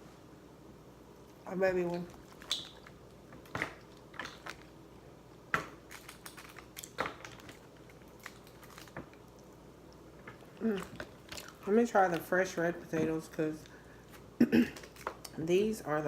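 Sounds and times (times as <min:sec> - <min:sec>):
seafood shells cracking and clicking: 0:02.1 - 0:04.8, 0:05.6 - 0:11.6.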